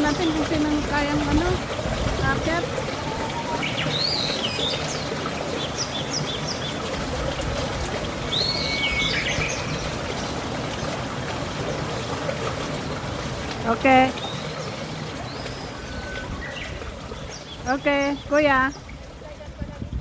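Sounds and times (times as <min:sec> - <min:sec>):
songbird whistling: 0:08.4 - 0:09.7.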